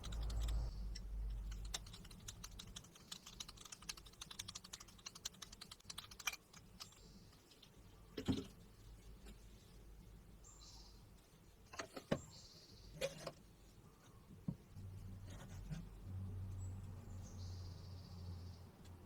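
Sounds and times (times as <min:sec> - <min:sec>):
low steady hum: 0:00.0 - 0:02.9.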